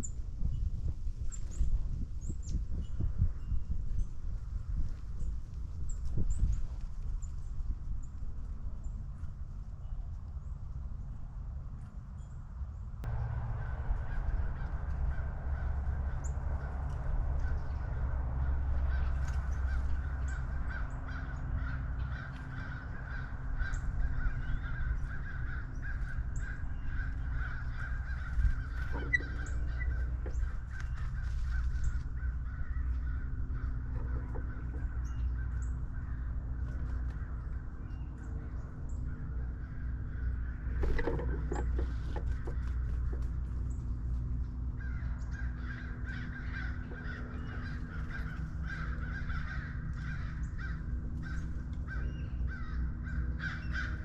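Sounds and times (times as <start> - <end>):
low rumble: 0.0 - 54.0
crows cawing: 13.1 - 43.5, 44.6 - 54.0.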